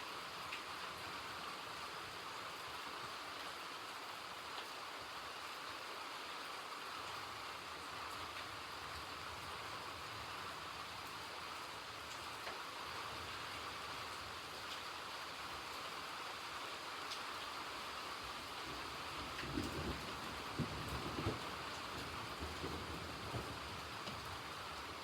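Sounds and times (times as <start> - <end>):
steady rain hiss: 0.0 - 25.0
faint raindrop ticks: 0.4 - 1.0, 11.0 - 15.0, 17.0 - 25.0.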